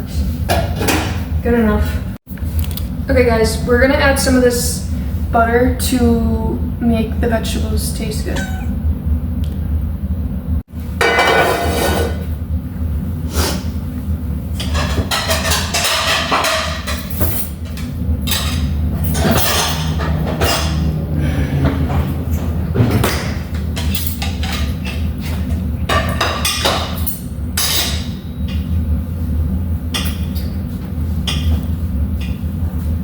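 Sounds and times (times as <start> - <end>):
steady low hum: 0.0 - 33.0
utensil scraping a pan: 11.0 - 12.2.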